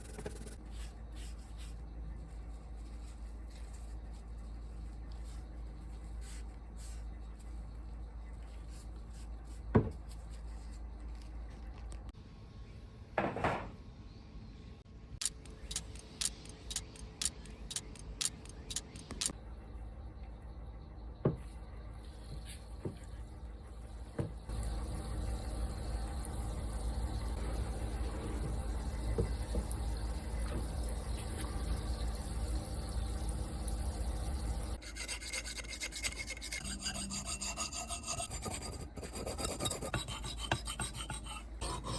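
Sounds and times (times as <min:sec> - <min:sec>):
rubbing and scraping metal: 0:15.2 - 0:19.3, 0:34.8 - 0:41.9
sharp ticks: 0:15.2 - 0:19.3.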